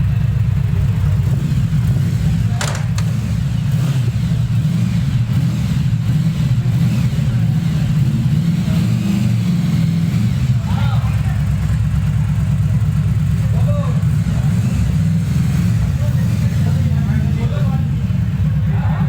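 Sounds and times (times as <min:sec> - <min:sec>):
motorcycle engine idling: 0:00.0 - 0:19.0
sharp click: 0:02.6 - 0:03.2.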